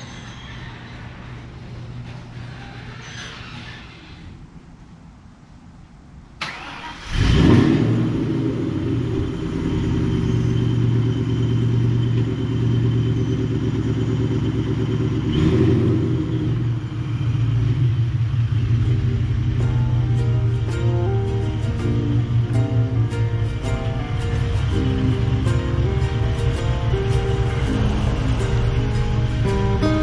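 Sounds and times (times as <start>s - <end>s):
car engine starting and running: 6.4s - 30.0s.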